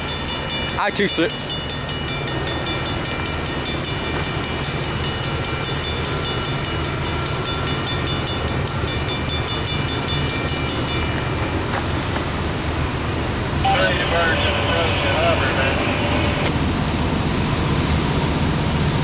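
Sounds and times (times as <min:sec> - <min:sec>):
rapid high-pitched ringing: 0:00.0 - 0:11.2
freight train rumbling: 0:00.0 - 0:19.0.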